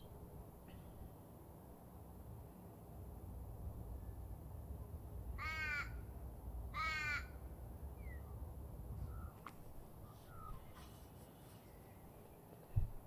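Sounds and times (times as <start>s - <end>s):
low rumble of outdoor ambience: 0.0s - 13.0s
loud bird calls: 9.0s - 11.8s.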